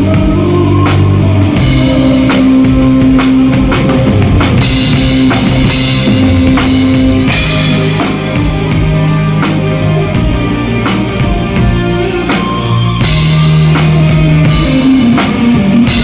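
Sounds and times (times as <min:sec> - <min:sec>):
drum kit hits: 0:00.0 - 0:16.0
rock song with full band: 0:00.0 - 0:16.0
cymbal wash: 0:01.1 - 0:11.4.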